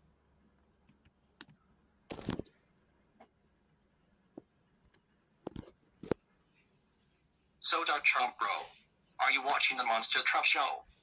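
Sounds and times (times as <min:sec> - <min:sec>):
faint clicks and taps: 0:00.6 - 0:02.6, 0:04.3 - 0:06.3.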